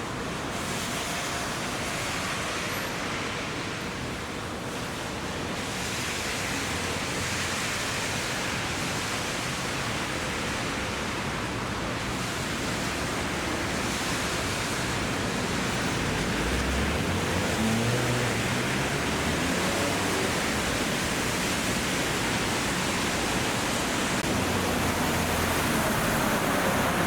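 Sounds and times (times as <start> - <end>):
heavy rain falling: 5.6 - 27.0.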